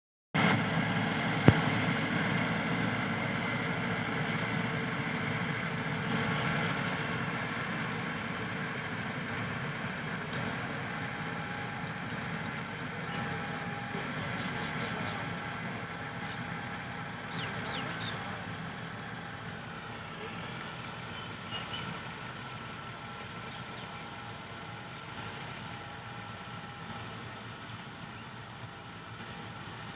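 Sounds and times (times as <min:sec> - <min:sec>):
tractor diesel engine running: 0:00.4 - 0:29.9.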